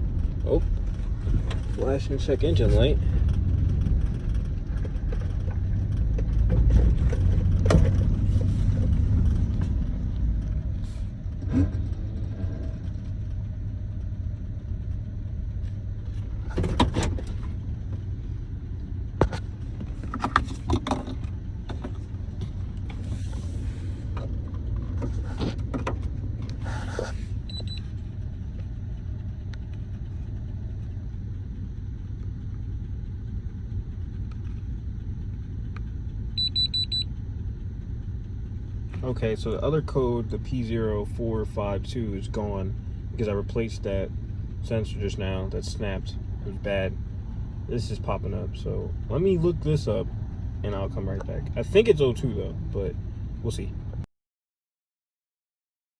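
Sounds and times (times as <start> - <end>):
engine clicks and knocks: 0.0 - 10.7, 11.3 - 23.0, 24.0 - 26.6
engine rumbling: 0.0 - 54.1.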